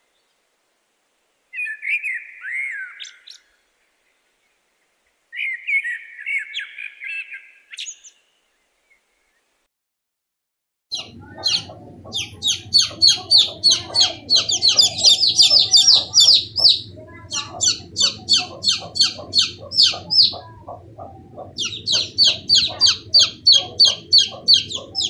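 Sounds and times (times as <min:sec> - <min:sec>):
baby chicks peeping: 0:10.9 - 0:25.0
steady low hum: 0:11.0 - 0:25.0.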